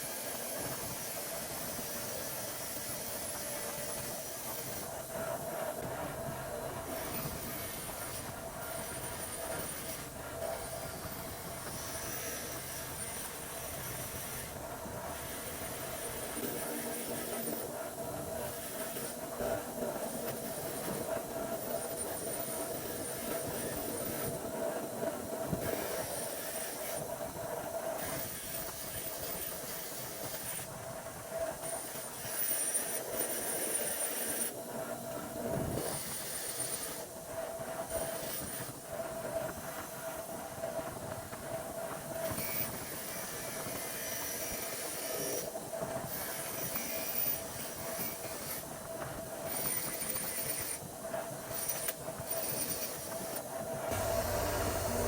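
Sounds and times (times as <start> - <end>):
high-pitched mechanical screech: 53.9 - 55.0.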